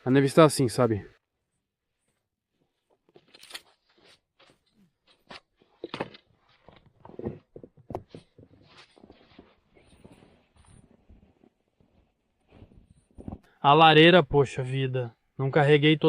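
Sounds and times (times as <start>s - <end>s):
snow crunching: 8.3s - 12.7s.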